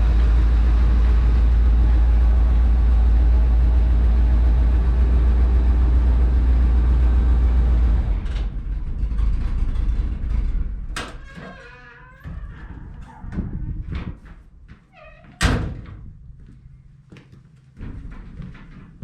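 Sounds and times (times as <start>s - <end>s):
truck engine rumbling: 0.0s - 14.2s
short creak: 11.1s - 13.4s, 14.9s - 15.5s.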